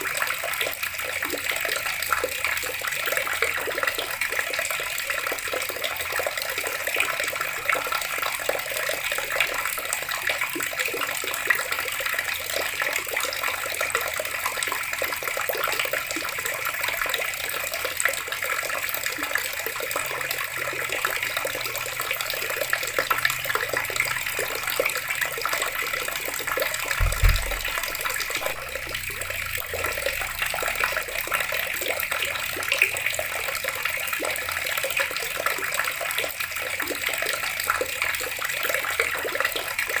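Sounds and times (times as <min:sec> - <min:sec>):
water running from a tap: 0:00.0 - 0:40.0
low thump: 0:27.0 - 0:29.4.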